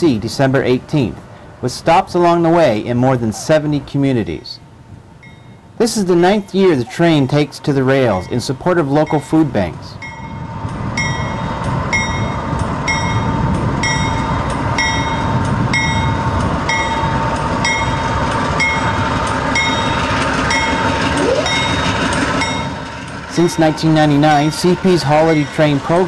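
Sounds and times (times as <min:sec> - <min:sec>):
diesel locomotive rumbling: 0:00.0 - 0:26.0
train bell ringing: 0:05.2 - 0:26.0.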